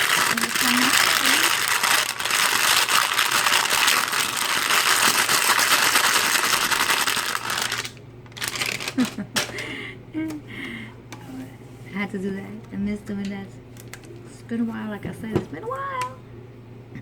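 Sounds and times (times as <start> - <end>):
plastic packaging crinkling: 0.0 - 9.6, 13.7 - 14.2.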